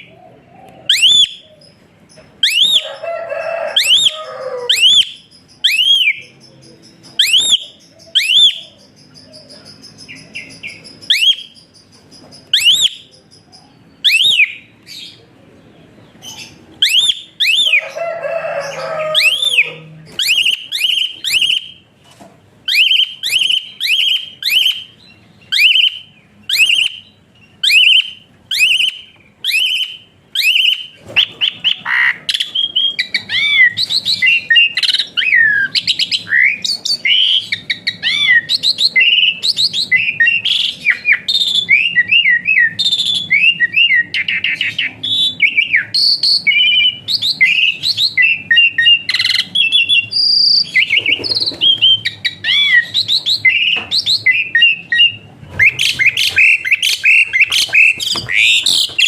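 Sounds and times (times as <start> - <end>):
starling whistling: 0.7 - 1.7, 2.4 - 6.3, 7.2 - 11.7, 12.5 - 13.2, 14.0 - 15.2, 16.4 - 21.8, 22.7 - 59.0
starling harsh chattering: 54.8 - 59.0.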